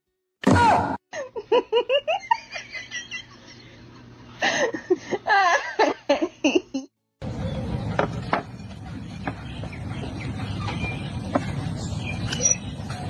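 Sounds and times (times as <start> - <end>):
person laughing hard: 1.1 - 3.8, 4.4 - 6.9
steady background noise: 7.2 - 13.0.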